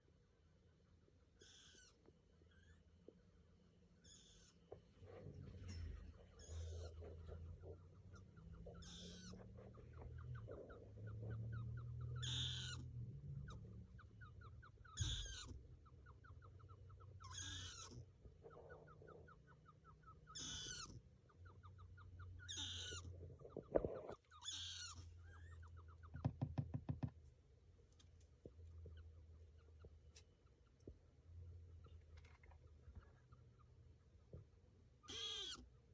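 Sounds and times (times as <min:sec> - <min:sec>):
low steady hum: 0:00.0 - 0:35.9
small animal squeaking calls: 0:01.3 - 0:03.0, 0:04.0 - 0:04.8, 0:05.6 - 0:26.4, 0:34.9 - 0:35.9.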